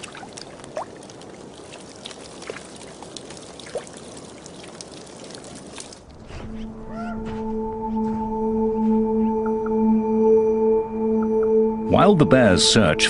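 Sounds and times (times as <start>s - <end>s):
meltwater trickling: 0.0s - 6.3s
soft music with held notes: 6.5s - 13.0s.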